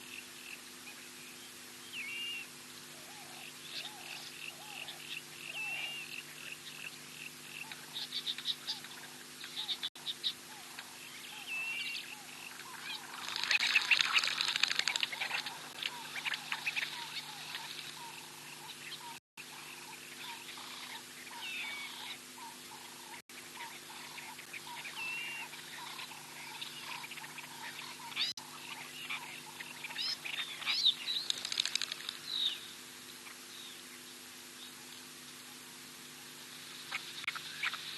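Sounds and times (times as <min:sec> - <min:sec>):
steady low hum: 0:00.0 - 0:37.9
birds chattering rapidly: 0:03.2 - 0:33.8
birds whistling: 0:23.6 - 0:31.3.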